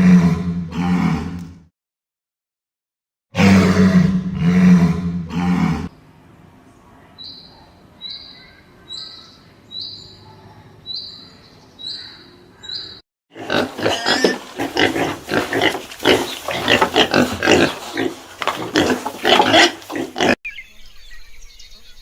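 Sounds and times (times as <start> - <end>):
pigs grunting: 0.0 - 1.4, 3.4 - 6.0, 13.3 - 20.4.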